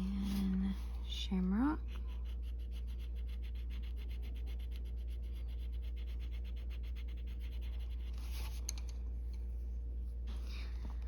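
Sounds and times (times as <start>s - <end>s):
steady low hum: 0.0s - 11.0s
pencil scratching on paper: 1.8s - 8.6s.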